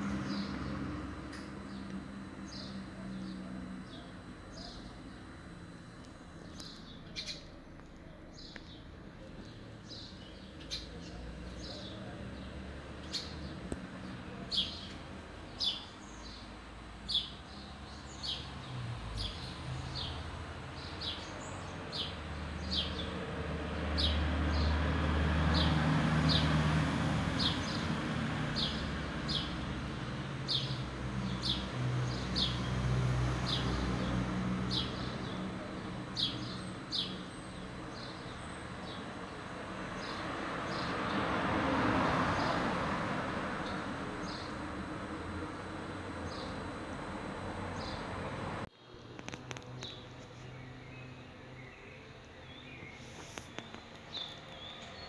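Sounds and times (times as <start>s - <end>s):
small bird chirping: 0.2s - 11.9s.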